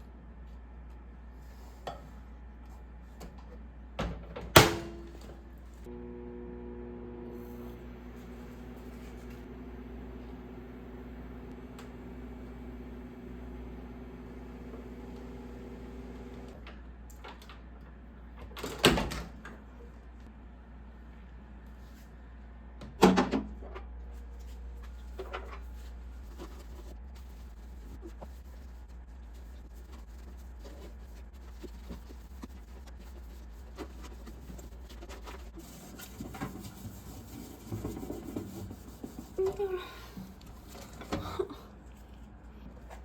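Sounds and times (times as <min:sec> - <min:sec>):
microwave oven humming: 0:03.7 - 0:17.1
low steady hum: 0:23.5 - 0:43.0.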